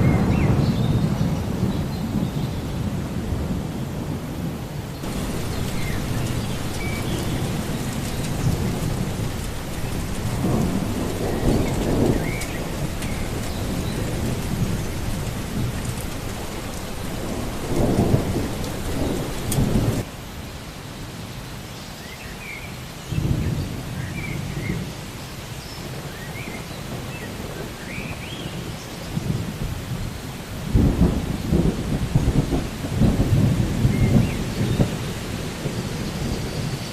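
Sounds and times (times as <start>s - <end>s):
thunder rumbling: 0.0s - 20.1s, 30.7s - 36.9s
steady rain: 0.0s - 36.9s.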